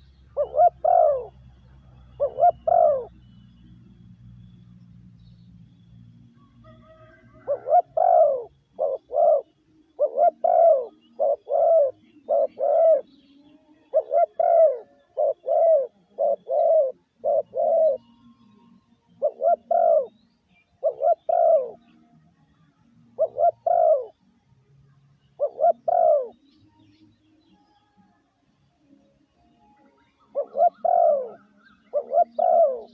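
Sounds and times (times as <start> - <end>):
dove cooing: 0.0 - 3.6, 6.4 - 18.2, 19.2 - 20.2, 20.8 - 22.0, 23.1 - 24.2, 25.4 - 26.4, 30.1 - 32.9.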